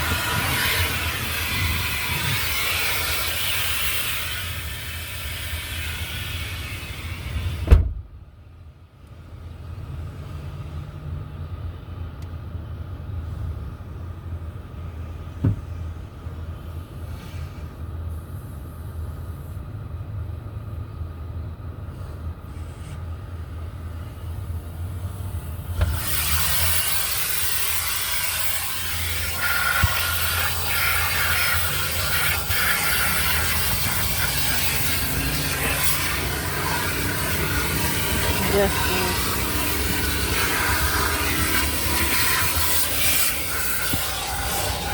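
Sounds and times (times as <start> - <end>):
car wash water spray hissing: 0.0 - 7.9, 23.5 - 44.9
loud thump: 7.6 - 8.2, 15.4 - 15.7.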